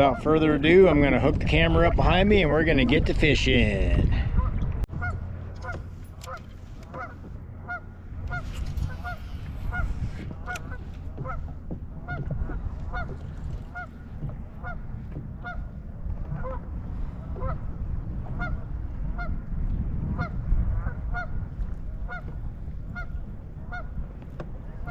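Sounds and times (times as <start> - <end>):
geese honking: 4.4 - 15.8, 18.3 - 19.3, 20.2 - 21.4, 22.0 - 24.0.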